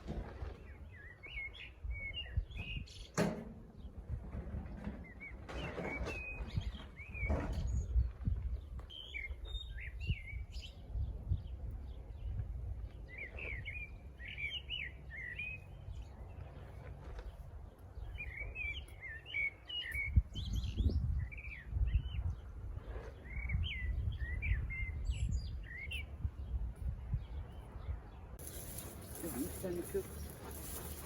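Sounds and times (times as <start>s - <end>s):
songbird chirping: 27.1s - 31.0s.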